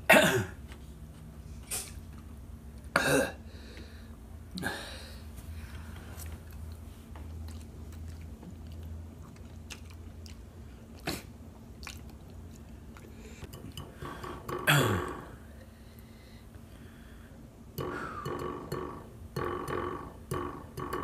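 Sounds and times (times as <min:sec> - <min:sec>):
people chewing noodles: 0:06.2 - 0:14.7.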